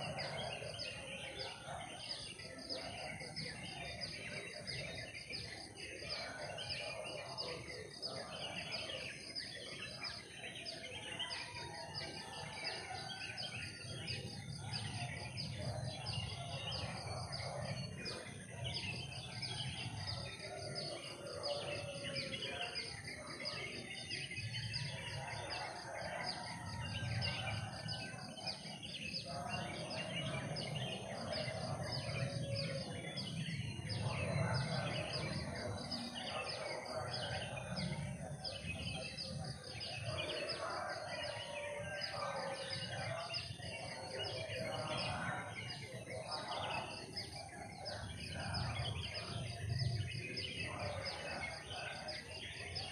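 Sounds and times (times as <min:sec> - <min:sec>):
chorus of rapid chirping: 0:00.0 - 0:52.9.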